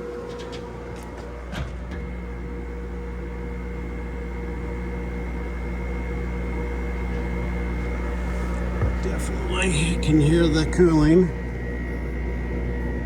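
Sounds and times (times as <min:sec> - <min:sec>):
compressor humming: 0:00.0 - 0:13.0
faint high whine: 0:02.2 - 0:13.0.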